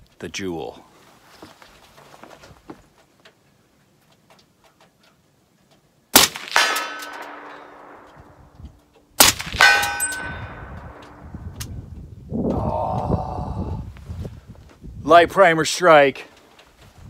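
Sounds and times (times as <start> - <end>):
rifle shots: 6.1 - 8.4, 9.2 - 11.3
metallic ring of steel target: 6.4 - 8.6, 9.2 - 11.5.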